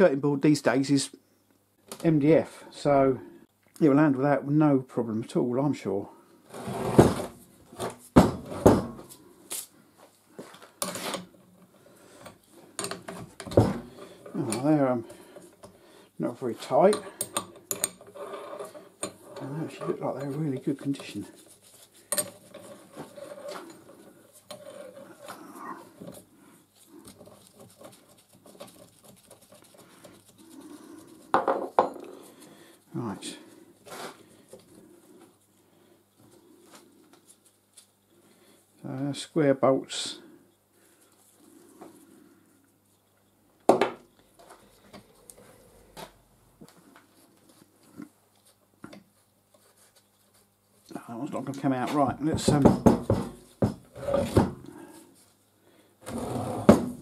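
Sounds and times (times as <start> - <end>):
metal tools clicking and tapping: 12.8 - 13.6, 16.8 - 18.1, 22.1 - 22.6.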